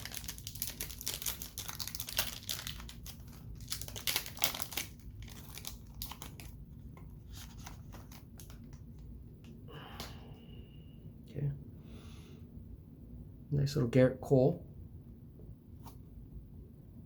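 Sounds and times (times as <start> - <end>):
card pack wrapper crinkling: 0.0 - 9.0.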